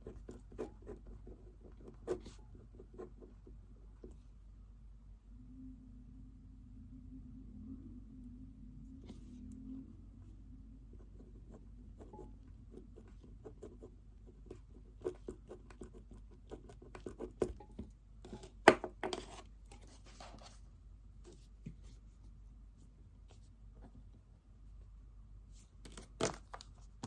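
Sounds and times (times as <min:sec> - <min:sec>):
pen writing on paper: 0:00.0 - 0:03.4, 0:11.4 - 0:17.6.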